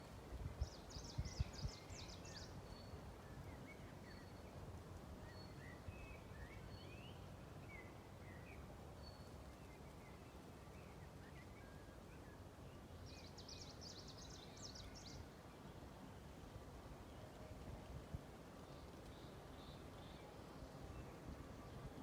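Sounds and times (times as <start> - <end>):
leaves rustling in wind: 0.0 - 22.0
small birds chirping: 0.5 - 4.6.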